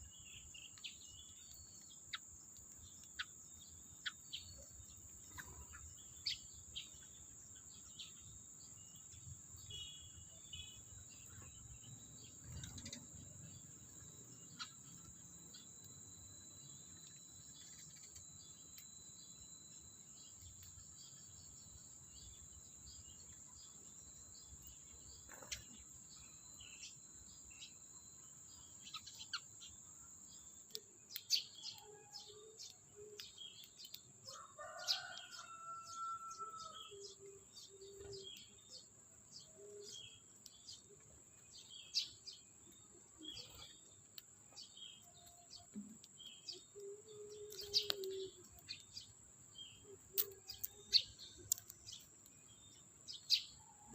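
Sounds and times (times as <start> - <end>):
cricket trill: 0.0 - 53.9
sparrows chirping: 0.0 - 53.9.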